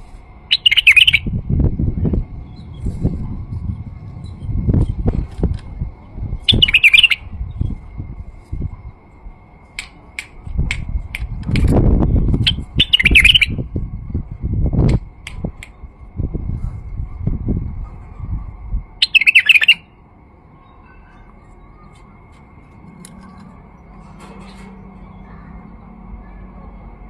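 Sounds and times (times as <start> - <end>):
low rumbling noise: 0.0 - 27.0
bird chip notes: 0.5 - 1.3, 6.4 - 7.4, 12.3 - 13.6, 19.0 - 20.0.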